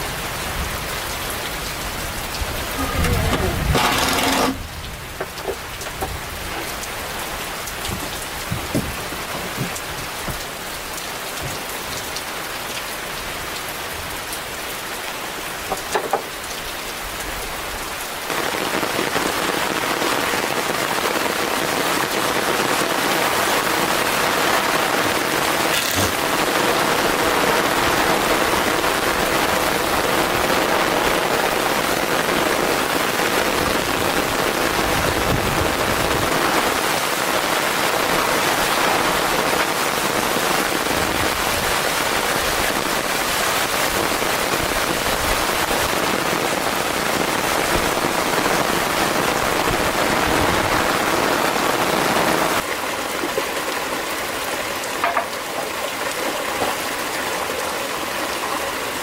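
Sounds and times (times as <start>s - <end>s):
steady rain falling: 0.0s - 59.0s
scattered drips or knocks: 55.0s - 55.5s.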